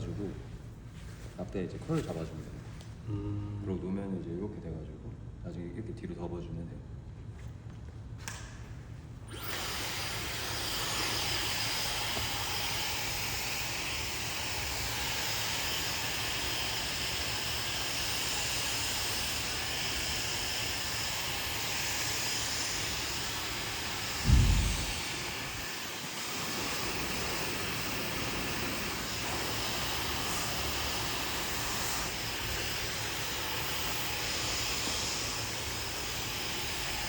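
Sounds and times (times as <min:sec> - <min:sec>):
hair dryer blowing: 0:09.3 - 0:37.0
brief low thump: 0:24.2 - 0:25.2.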